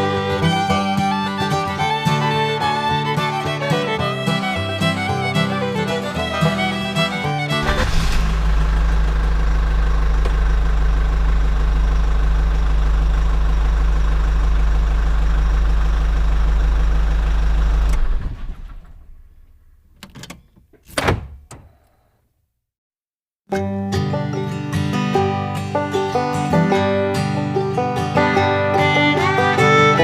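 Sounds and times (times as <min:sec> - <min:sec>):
small engine humming: 0:00.0 - 0:19.0, 0:28.7 - 0:30.0.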